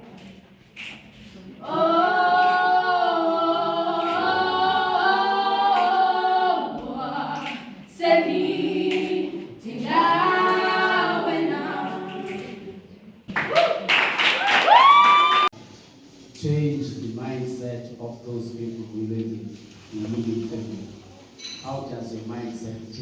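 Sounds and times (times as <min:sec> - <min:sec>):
group singing a cappella: 0:01.4 - 0:13.3.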